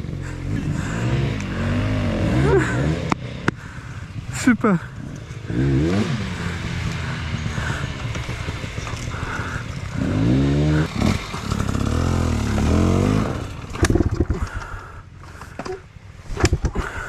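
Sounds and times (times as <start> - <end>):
dirt bike engine revving: 0.0 - 14.5.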